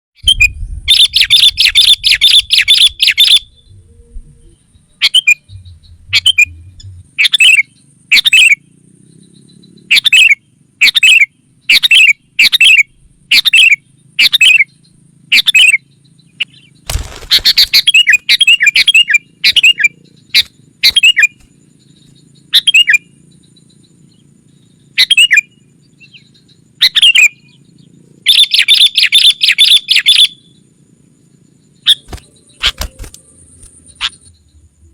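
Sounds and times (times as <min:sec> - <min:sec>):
bulbul calling: 0:00.2 - 0:34.9.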